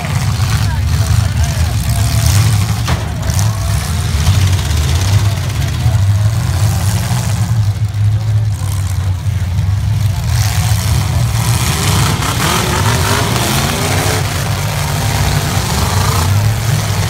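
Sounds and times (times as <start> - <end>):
car engines revving: 0.0 - 17.0
spectators' voices: 0.0 - 17.0.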